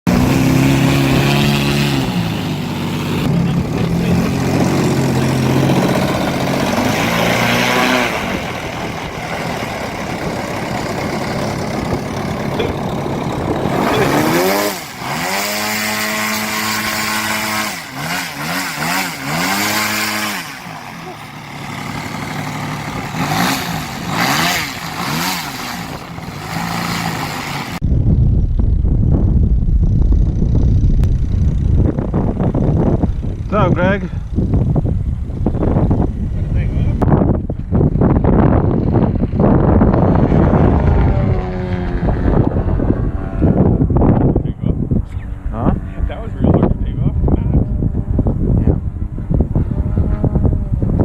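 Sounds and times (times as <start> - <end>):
model plane engine: 0.1 - 27.8.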